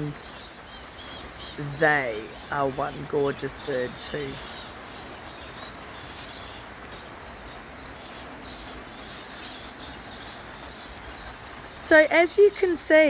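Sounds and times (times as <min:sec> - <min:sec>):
light rain hiss: 0:00.0 - 0:13.0.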